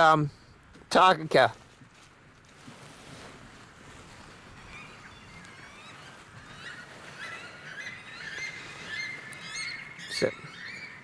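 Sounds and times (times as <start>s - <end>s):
bird shrill whistling calls: 4.6s - 11.0s.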